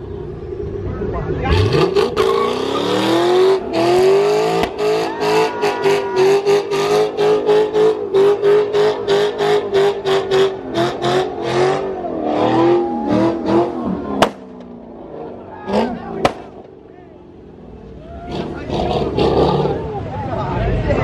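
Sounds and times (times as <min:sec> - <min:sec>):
engine bouncing off rev limiter: 0:01.3 - 0:16.8.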